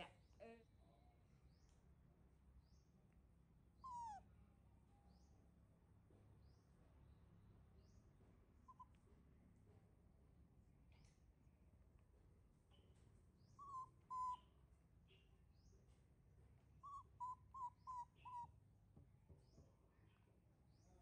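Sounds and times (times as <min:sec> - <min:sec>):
faint high bird chirps: 0:03.8 - 0:05.6, 0:07.8 - 0:09.1, 0:12.6 - 0:18.6
bird whistled hoots: 0:13.6 - 0:14.5, 0:16.8 - 0:18.5.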